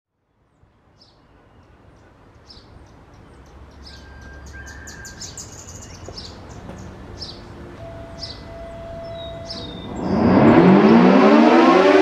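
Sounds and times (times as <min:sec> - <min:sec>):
outdoor background noise: 0:00.1 - 0:12.0
small birds chirping: 0:00.6 - 0:11.0.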